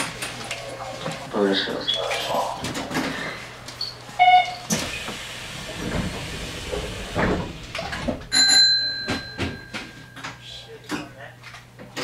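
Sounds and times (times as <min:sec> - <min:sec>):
train passing rumbling and clattering: 0:04.9 - 0:08.4.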